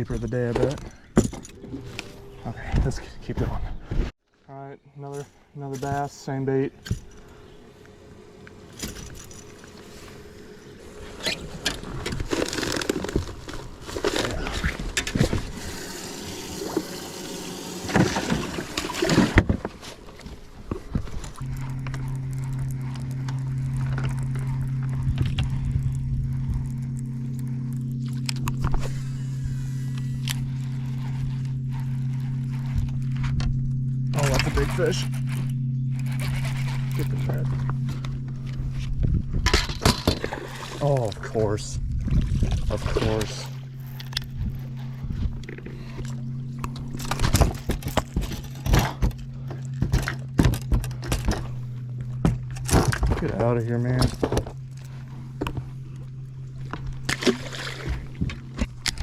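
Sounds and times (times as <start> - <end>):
electric trolling motor humming: 0.0 - 3.4, 6.2 - 59.0
knocks and clatters on boat: 46.9 - 51.6.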